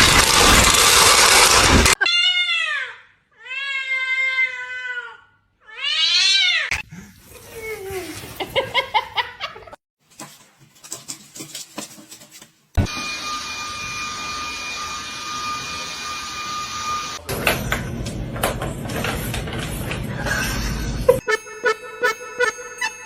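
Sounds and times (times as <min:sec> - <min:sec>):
cat meowing: 0:02.0 - 0:06.7.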